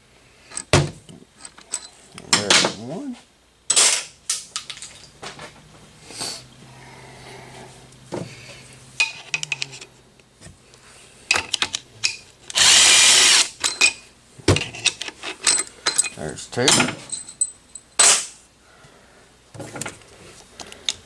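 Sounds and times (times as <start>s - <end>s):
clinks of metal tools: 1.4s - 2.8s, 11.3s - 18.4s
power tool whirring: 12.5s - 13.6s.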